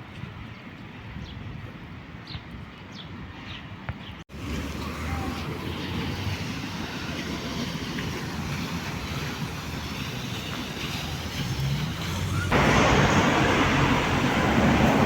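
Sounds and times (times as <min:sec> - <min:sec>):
outdoor background rumble: 0:04.3 - 0:15.0.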